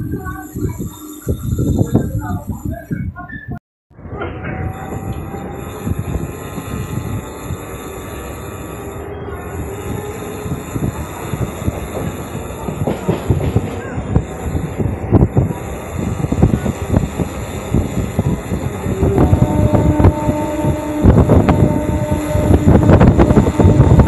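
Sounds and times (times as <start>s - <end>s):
steady pitched tone: 0.0s - 3.0s
train rumbling: 0.0s - 24.0s.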